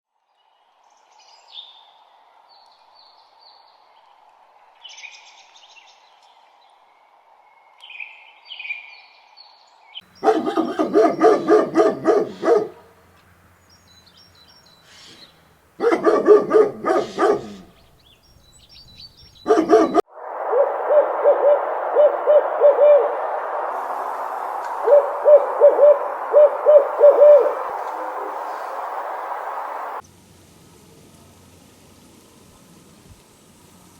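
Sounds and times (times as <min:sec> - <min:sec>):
dense chorus of quick calls: 0:10.2 - 0:12.8, 0:19.5 - 0:30.0
owl hooting: 0:10.2 - 0:12.8, 0:15.8 - 0:17.7, 0:19.5 - 0:30.0
faint high bird chirps: 0:18.4 - 0:30.0.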